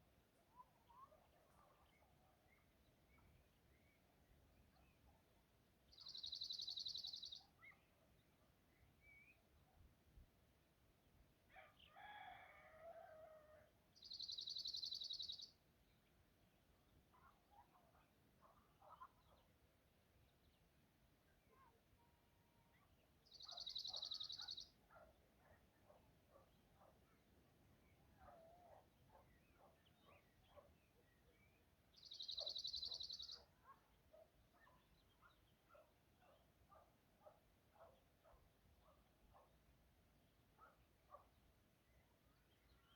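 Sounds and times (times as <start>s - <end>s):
songbirds calling: 5.9s - 9.5s, 14.0s - 16.1s, 22.8s - 36.9s.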